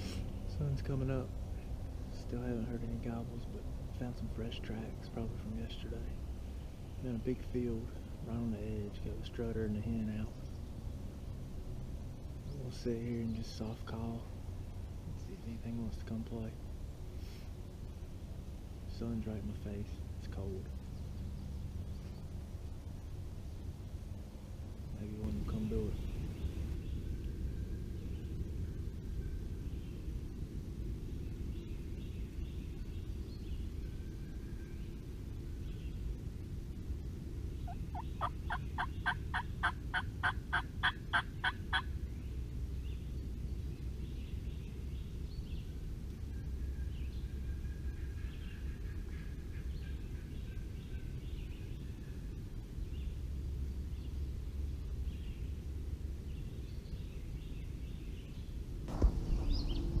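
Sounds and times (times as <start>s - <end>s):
highway traffic rumble: 0.0s - 60.0s
turkey yelps: 37.7s - 41.9s.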